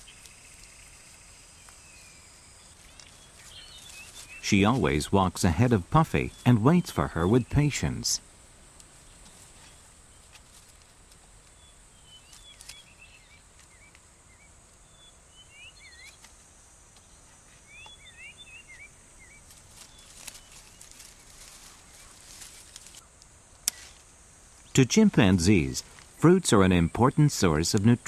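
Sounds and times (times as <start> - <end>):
small bird chirping: 0.0 - 4.9, 11.4 - 16.2, 17.0 - 23.0
high-pitched hiss: 0.0 - 28.0.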